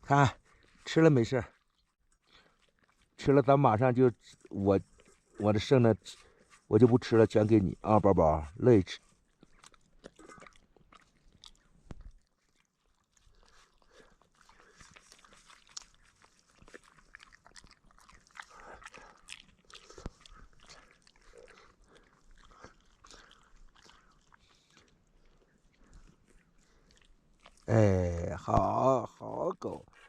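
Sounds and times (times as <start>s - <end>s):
dog chewing: 1.6s - 3.2s, 9.0s - 27.7s.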